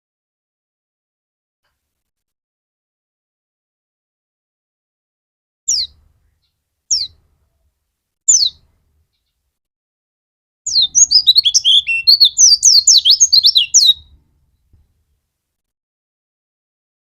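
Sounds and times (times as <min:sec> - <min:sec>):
fast bird twittering: 0:05.7 - 0:06.0, 0:06.9 - 0:07.2, 0:08.3 - 0:08.6, 0:10.7 - 0:14.0
high downward sliding bird notes: 0:10.7 - 0:14.0.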